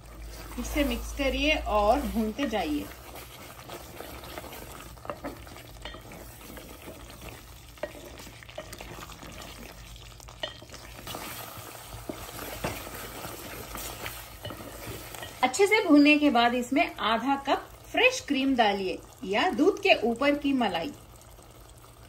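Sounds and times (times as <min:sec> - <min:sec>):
meat sizzling in a pot: 0:00.0 - 0:22.0
spatula scraping and knocking pot: 0:00.3 - 0:15.6.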